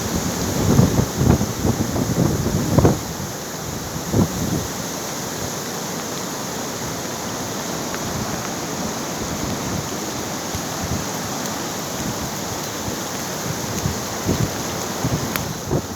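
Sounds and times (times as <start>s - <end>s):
wind buffeting microphone: 0.0s - 4.8s, 8.0s - 15.9s
floodwater rushing: 0.0s - 15.9s.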